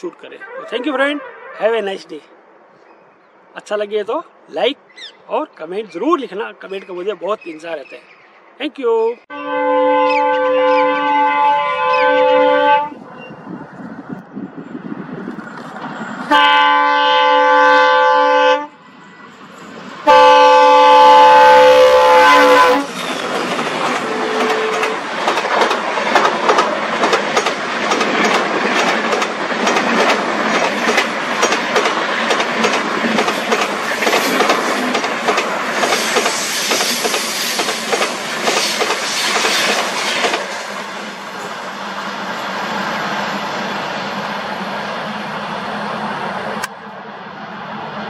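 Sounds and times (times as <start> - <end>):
locomotive horn blasts: 9.3 - 13.0, 16.3 - 19.4, 20.0 - 22.9, 24.0 - 25.0
train wheels clattering: 22.9 - 40.8.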